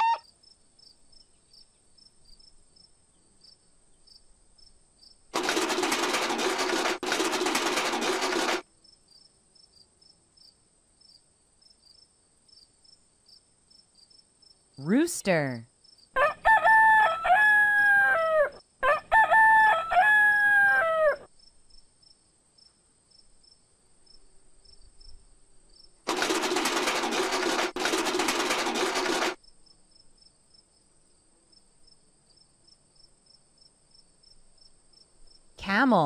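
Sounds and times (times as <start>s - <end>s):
rooster crowing: 0.0s - 0.2s, 16.2s - 21.3s
cricket chirps: 0.2s - 5.3s, 8.7s - 14.8s, 15.7s - 16.2s, 21.3s - 26.0s, 29.4s - 35.6s.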